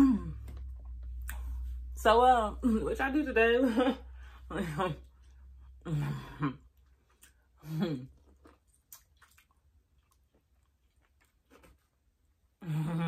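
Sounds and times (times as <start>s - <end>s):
corn bites and wet chewing: 6.8s - 12.4s.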